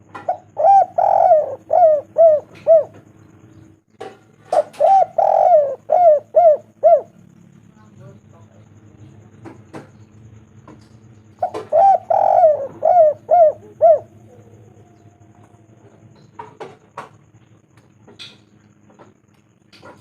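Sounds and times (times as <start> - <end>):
dove cooing: 0.0 - 7.5, 11.2 - 17.6.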